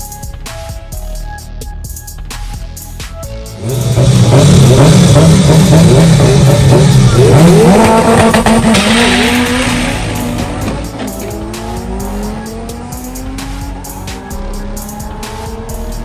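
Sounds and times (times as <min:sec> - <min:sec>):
car engine running hard: 0:03.6 - 0:16.0.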